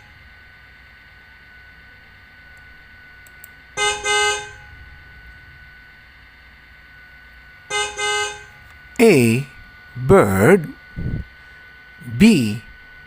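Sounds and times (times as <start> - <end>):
faint steady hum: 0.0 - 13.0
car horn honking: 3.8 - 4.7, 7.7 - 8.7.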